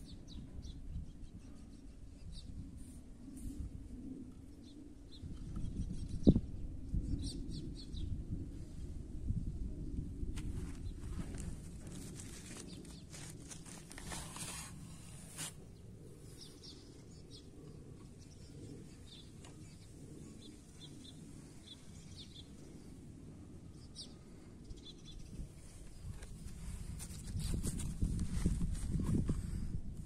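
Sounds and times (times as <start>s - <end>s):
steady low rumble: 2.4s - 14.1s.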